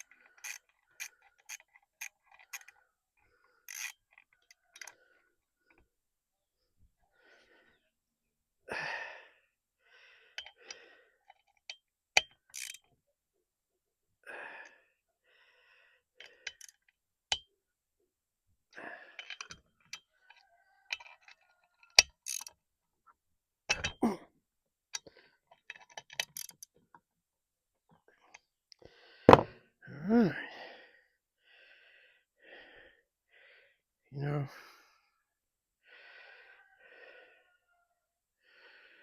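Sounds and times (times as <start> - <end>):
hand tools and metal parts clinking: 0.0 - 2.8, 3.7 - 5.0, 10.4 - 12.9, 16.2 - 17.5, 19.1 - 22.6, 23.7 - 24.1, 25.0 - 26.9.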